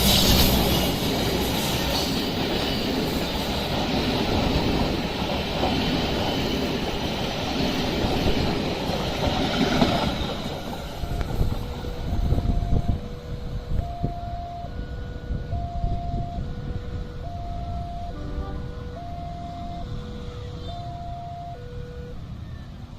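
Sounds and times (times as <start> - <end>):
train rumbling and rattling past: 0.0 - 22.9
level crossing two-tone signal: 10.9 - 22.6.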